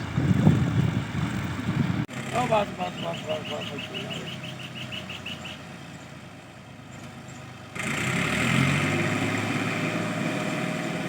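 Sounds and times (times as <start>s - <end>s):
tractor engine idling: 0.0s - 8.1s.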